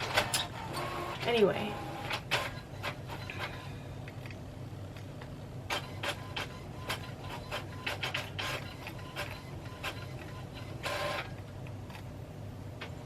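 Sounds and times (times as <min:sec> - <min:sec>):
printer humming: 0:00.0 - 0:04.0, 0:05.5 - 0:13.0.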